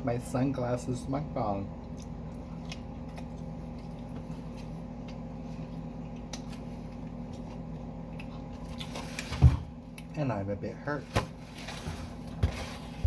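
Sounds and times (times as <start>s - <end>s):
clicks and rustles of eating: 1.8s - 10.2s.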